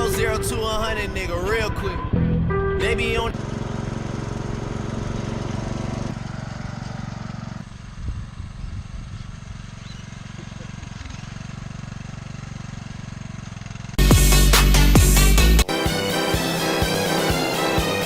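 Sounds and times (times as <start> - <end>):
loud music: 0.0 - 3.4, 14.0 - 18.0
tractor engine running: 0.0 - 18.0.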